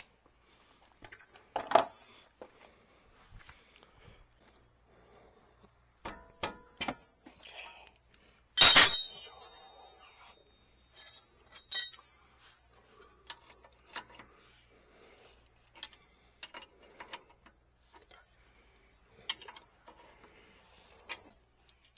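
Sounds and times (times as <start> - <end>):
metal tools clinking: 8.6 - 9.3, 11.0 - 12.0
sharp ringing metal clank: 8.6 - 9.3, 11.0 - 11.9.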